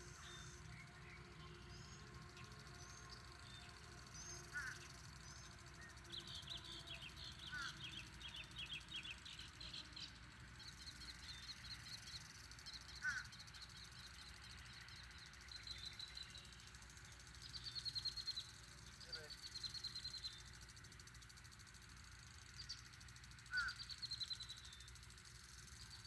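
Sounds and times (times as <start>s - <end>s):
songbirds trilling and chirping: 0.0s - 26.0s
low bird calls: 4.5s - 5.2s, 7.4s - 8.1s, 23.5s - 23.8s.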